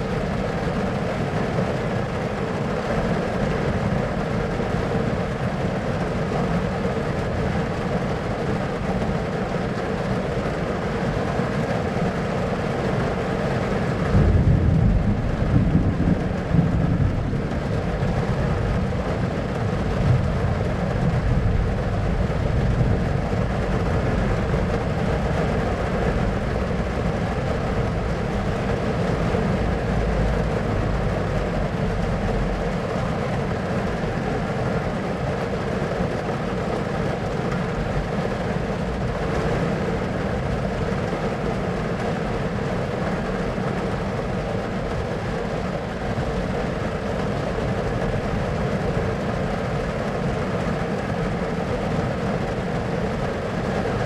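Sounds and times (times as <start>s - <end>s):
storm noise: 12.8s - 35.6s
thunder rumbling: 13.9s - 32.7s.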